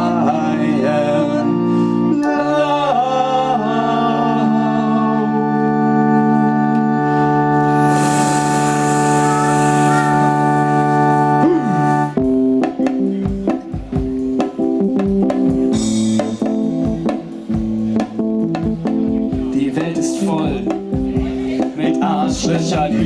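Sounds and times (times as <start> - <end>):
electric keyboard chord: 0.0 - 23.0
cymbal wash: 7.7 - 10.7
drums and bass hits: 11.5 - 23.0.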